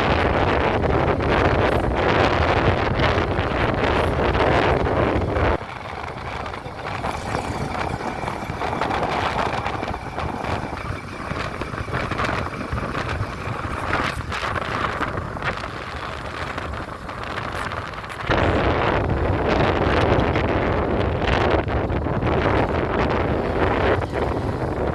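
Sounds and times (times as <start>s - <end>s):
vehicle moving along road: 0.0s - 24.9s
wind buffeting microphone: 0.0s - 24.9s.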